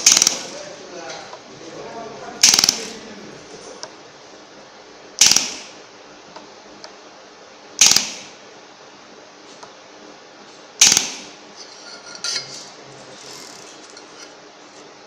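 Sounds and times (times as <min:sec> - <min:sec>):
laser welder buzzing: 0:00.0 - 0:00.6, 0:02.4 - 0:03.1, 0:05.2 - 0:05.8, 0:07.8 - 0:08.4, 0:10.8 - 0:11.6, 0:13.1 - 0:14.8.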